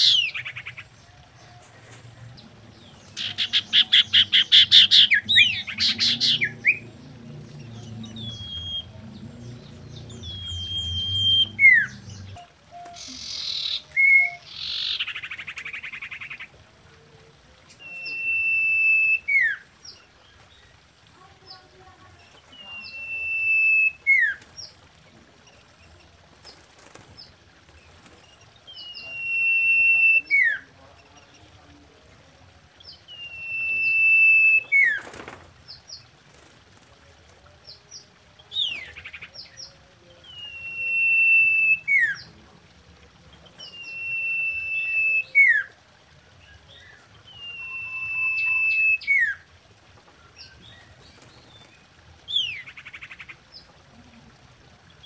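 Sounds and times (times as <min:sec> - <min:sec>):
bird whistle call: 0:10.2 - 0:14.5, 0:17.8 - 0:19.6, 0:22.7 - 0:24.4, 0:28.8 - 0:30.6, 0:33.2 - 0:35.0, 0:40.3 - 0:42.2, 0:43.7 - 0:45.7, 0:47.3 - 0:49.4.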